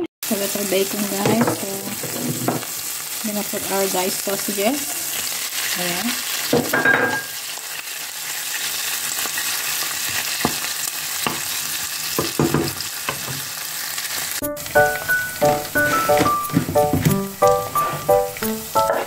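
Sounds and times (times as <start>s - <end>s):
meat sizzling in oil: 0.2s - 19.0s
background music: 14.4s - 19.0s.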